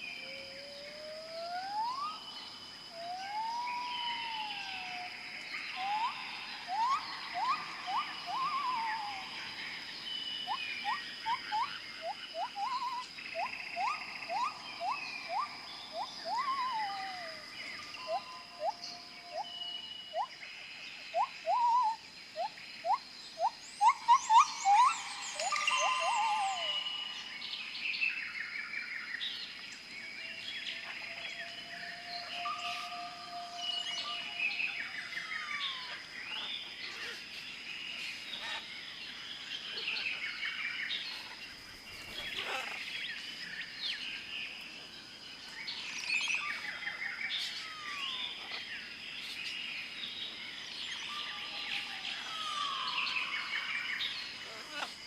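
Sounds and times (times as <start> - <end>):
birds chirping and singing: 0.0 - 44.6, 45.4 - 55.0
steady high-pitched tone: 24.3 - 27.7.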